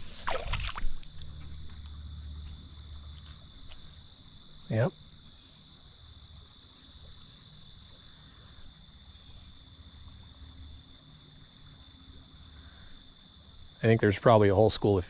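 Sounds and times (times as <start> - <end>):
faint low rumble: 0.0 - 4.0
insects chirping: 0.0 - 15.0.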